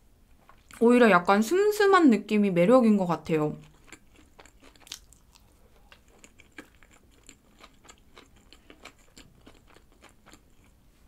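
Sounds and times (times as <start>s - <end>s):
person chewing bread: 3.6s - 11.0s.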